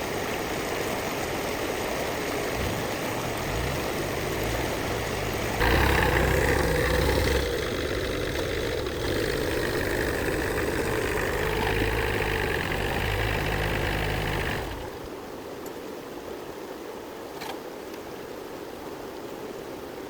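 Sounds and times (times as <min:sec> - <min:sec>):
faint steady hiss: 0:00.0 - 0:20.0
vehicle engine running: 0:03.4 - 0:15.1.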